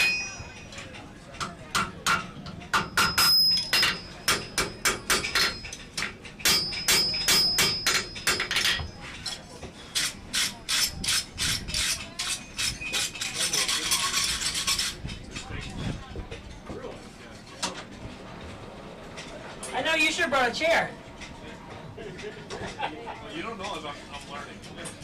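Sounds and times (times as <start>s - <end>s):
hammer striking iron on anvil: 0.0s - 0.6s, 1.4s - 8.9s.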